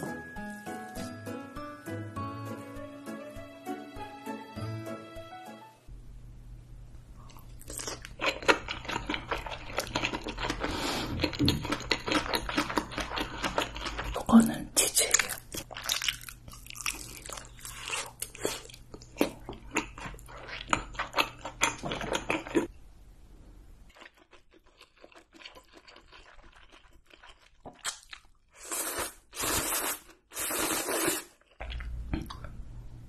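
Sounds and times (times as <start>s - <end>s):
chewing and biting: 7.3s - 14.3s, 23.9s - 28.4s
drawn-out eating sounds: 7.4s - 14.4s, 23.9s - 28.5s.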